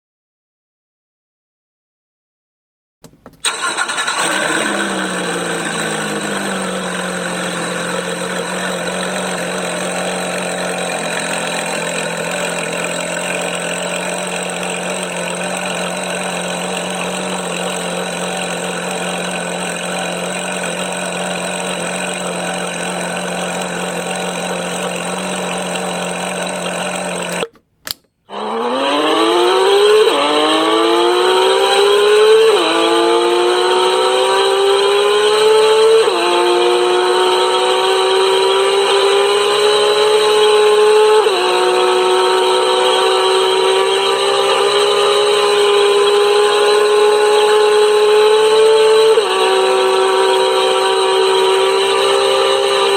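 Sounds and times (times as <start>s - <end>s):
car engine idling: 3.0s - 27.8s
car engine starting: 3.0s - 52.9s
car engine accelerating hard: 3.4s - 27.5s, 28.3s - 52.9s.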